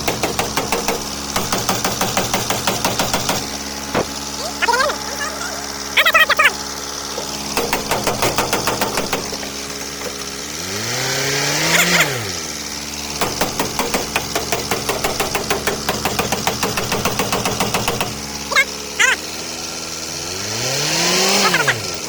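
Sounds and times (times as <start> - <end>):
motor running: 0.0 - 22.0.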